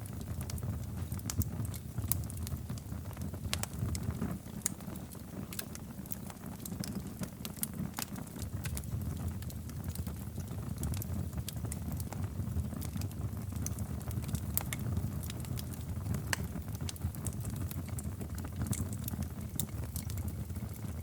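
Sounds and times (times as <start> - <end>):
wood fire crackling and popping: 0.0 - 21.0.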